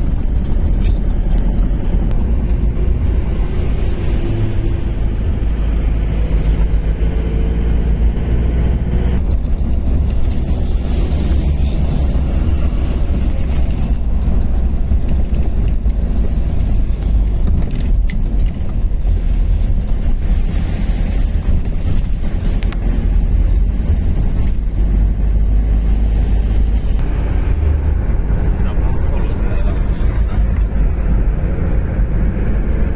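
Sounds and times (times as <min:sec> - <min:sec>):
knocks and rattles: 0:00.0 - 0:05.4, 0:09.2 - 0:26.0
truck engine rumble: 0:00.0 - 0:32.9.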